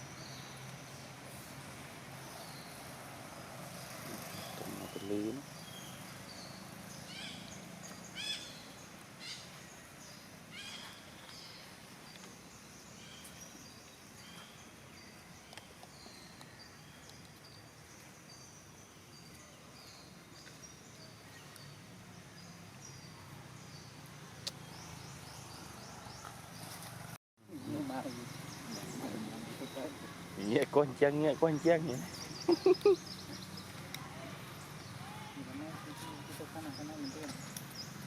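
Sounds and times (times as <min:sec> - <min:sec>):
high-pitched chirping calls: 0:32.0 - 0:35.1.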